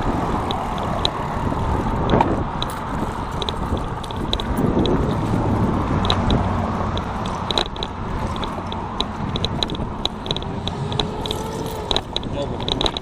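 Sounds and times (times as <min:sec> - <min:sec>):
bicycle clicking: 0:00.0 - 0:13.0
road and wind noise: 0:00.0 - 0:13.0.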